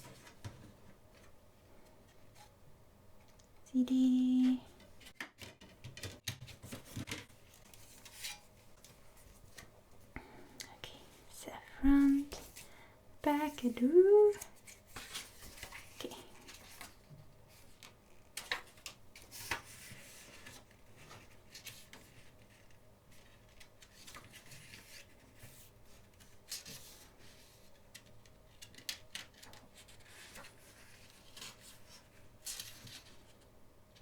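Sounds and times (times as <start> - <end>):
rustling of paper and plastic: 4.7 - 10.1, 13.4 - 34.0
pages being turned: 14.4 - 33.4.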